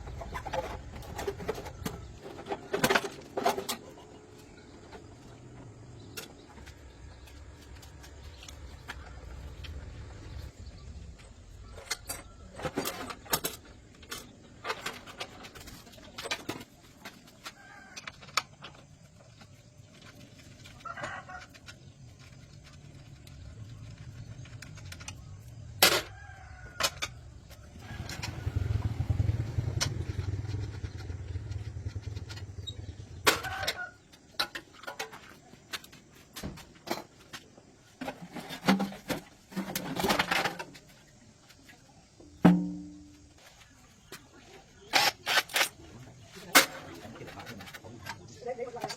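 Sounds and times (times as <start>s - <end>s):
rooster crowing: 26.0s - 29.0s
sharp knocks and clanks: 42.2s - 43.5s.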